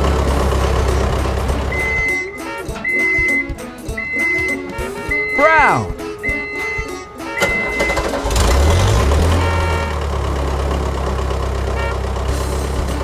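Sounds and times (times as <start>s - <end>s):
cartoon engine starting and idling: 0.0s - 2.2s, 7.2s - 13.0s
short high beeps: 1.7s - 6.7s.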